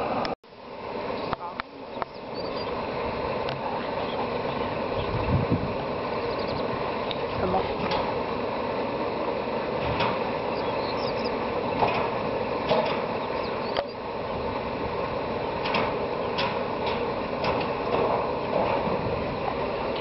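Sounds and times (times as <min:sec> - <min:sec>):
irregular clicks and knocks: 0:15.6 - 0:18.9.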